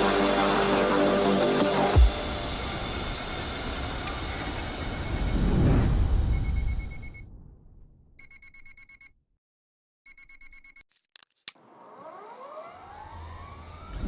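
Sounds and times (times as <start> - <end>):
electric motor whine rising: 11.6 - 14.0.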